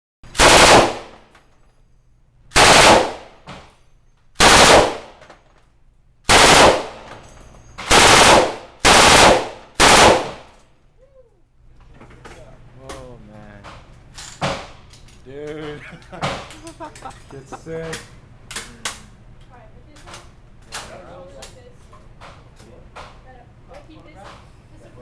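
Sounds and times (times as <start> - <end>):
machine gun automatic bursts: 0.4 - 1.2, 2.6 - 3.4, 4.4 - 5.2, 6.3 - 7.1, 7.9 - 10.5.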